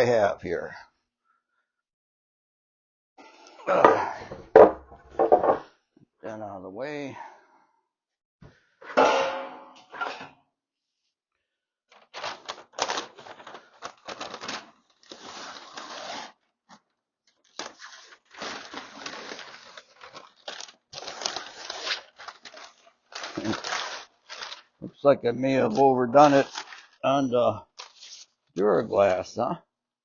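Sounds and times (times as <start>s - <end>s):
paper crumpling: 11.9s - 16.3s, 17.4s - 24.8s, 25.5s - 27.1s
paper peeling and tearing: 11.9s - 16.4s, 17.4s - 24.7s, 25.6s - 27.0s.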